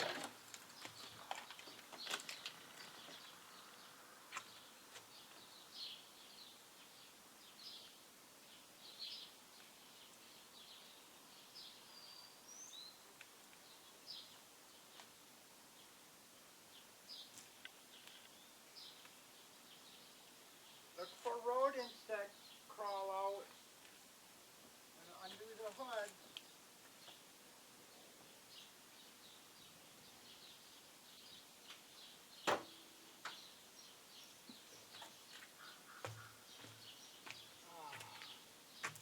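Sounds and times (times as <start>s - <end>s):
faint bird chirps: 2.8s - 15.0s.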